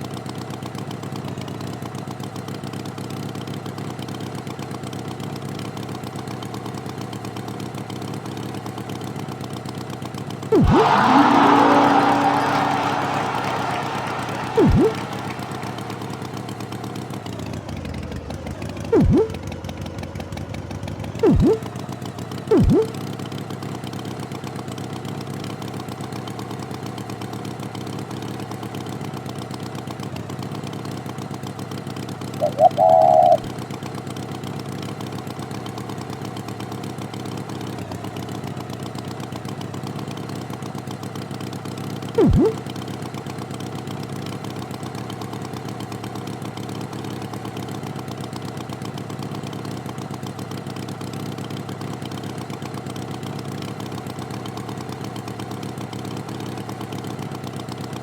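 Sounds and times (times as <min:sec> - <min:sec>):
short blips dropping in pitch: 0:10.5 - 0:16.6, 0:19.0 - 0:19.4, 0:21.2 - 0:21.7, 0:22.5 - 0:23.0, 0:32.4 - 0:33.5, 0:42.2 - 0:42.6
brief high-pitched tone: 0:10.6 - 0:13.4, 0:14.0 - 0:16.4, 0:19.0 - 0:19.4, 0:21.2 - 0:21.6, 0:22.5 - 0:23.0, 0:32.4 - 0:33.5, 0:42.2 - 0:42.6.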